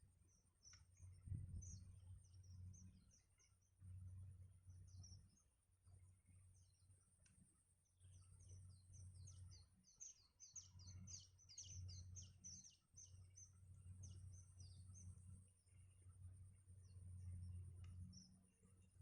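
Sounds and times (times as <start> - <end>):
low rumble: 1.1 - 2.4.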